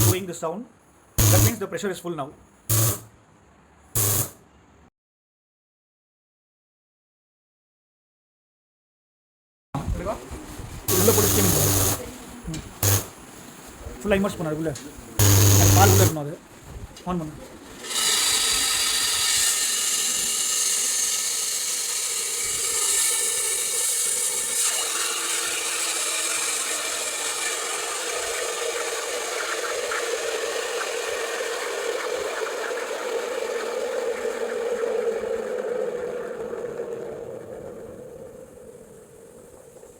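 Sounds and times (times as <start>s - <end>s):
steam wand hissing in milk: 0.0s - 0.3s, 1.2s - 1.6s, 2.7s - 3.1s, 4.0s - 4.4s, 10.8s - 14.5s, 15.2s - 16.2s, 17.8s - 37.0s
steady low tone: 1.2s - 1.7s.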